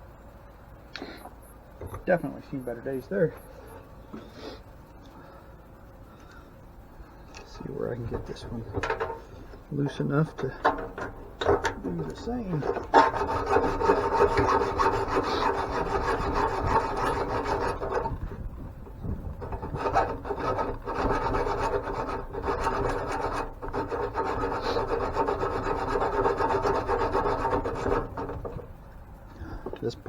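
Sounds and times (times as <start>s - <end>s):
rapid scraping and rasping: 7.4s - 28.7s.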